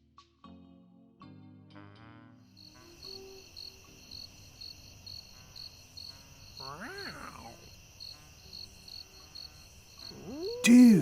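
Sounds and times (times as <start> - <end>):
cartoon crickets chirping: 2.6 - 11.0
short voice-like call: 10.2 - 11.0.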